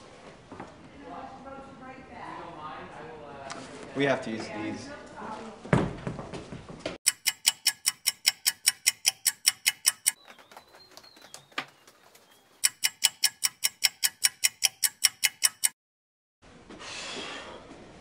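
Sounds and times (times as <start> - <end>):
clock-like ticking: 7.1 - 10.2, 12.6 - 15.8.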